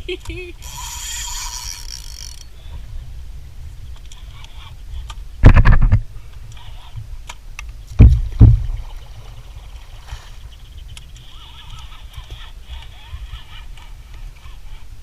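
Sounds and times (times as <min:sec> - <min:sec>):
water and wind rumble: 0:00.0 - 0:15.0
knocks and bumps on kayak: 0:08.0 - 0:08.8.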